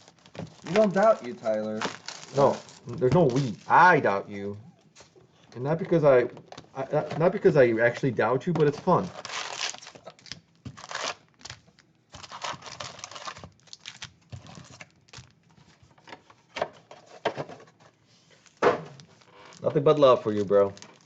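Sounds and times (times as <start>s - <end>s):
card pack foil crinkling: 0.0s - 4.0s, 8.8s - 15.4s, 18.4s - 21.0s.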